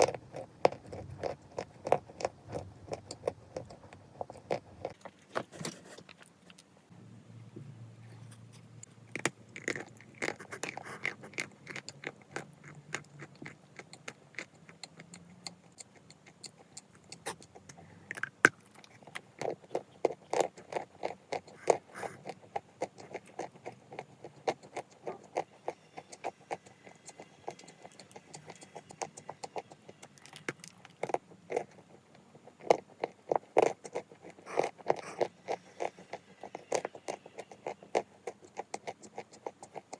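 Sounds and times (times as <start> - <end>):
chalk being chewed: 8.2 - 39.9.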